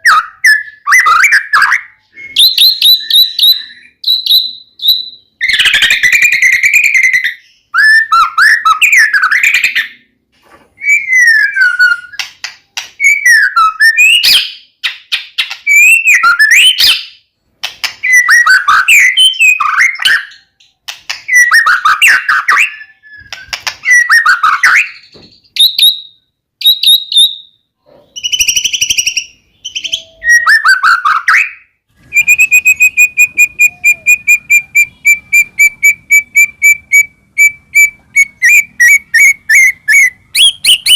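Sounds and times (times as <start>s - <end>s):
bird singing whistles and chatter: 0.0s - 9.8s, 10.8s - 12.3s, 15.7s - 17.1s, 21.3s - 27.5s, 28.1s - 40.9s.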